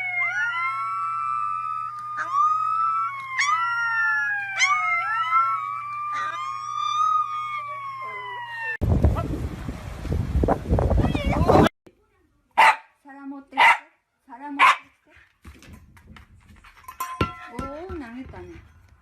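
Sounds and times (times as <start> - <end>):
dog howling: 0.0 - 8.8
siren wail: 0.0 - 8.8.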